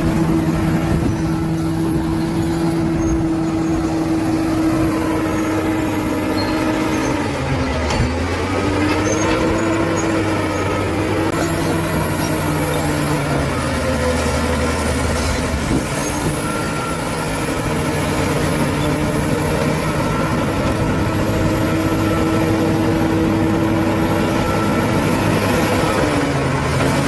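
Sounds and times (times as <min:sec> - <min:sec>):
bulldozer diesel engine running: 0:00.0 - 0:27.0.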